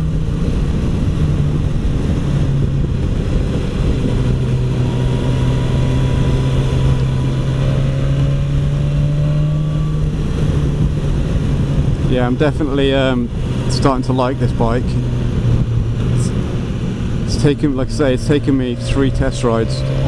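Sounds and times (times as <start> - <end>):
motorcycle engine cruising: 0.0 - 20.0
wind and road rush: 0.0 - 20.0.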